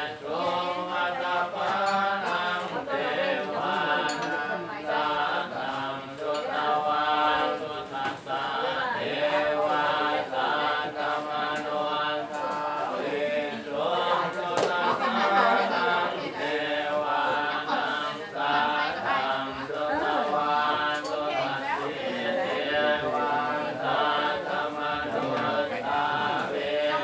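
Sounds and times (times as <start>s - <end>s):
group chanting in unison: 0.0s - 27.0s.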